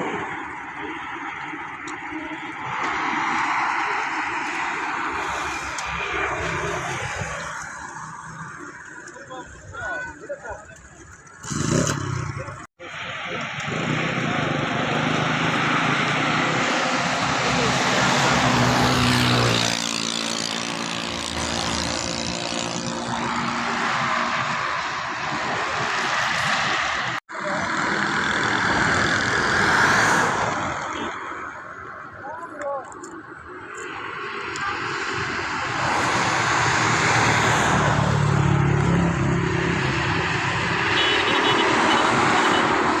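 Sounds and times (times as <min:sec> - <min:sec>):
engine passing close by: 0:11.4 - 0:31.1, 0:34.8 - 0:43.0.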